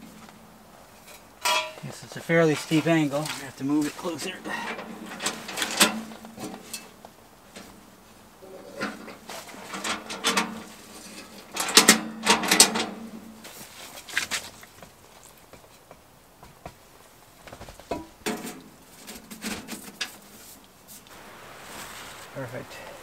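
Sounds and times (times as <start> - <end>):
metal stove clanking and scraping: 0.9 - 1.9, 4.1 - 7.8, 8.5 - 13.4, 17.9 - 20.2.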